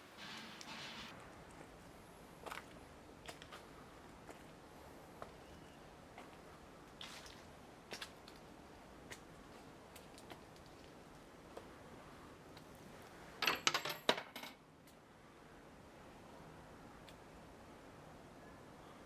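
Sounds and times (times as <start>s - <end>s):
coins clinking into a box: 13.4s - 14.6s.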